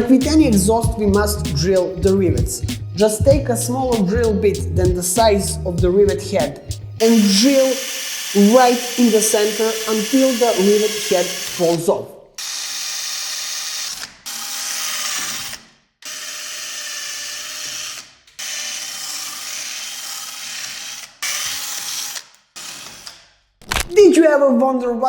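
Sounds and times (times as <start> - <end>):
power drill drilling rivets: 7.0 - 11.8, 12.4 - 23.9.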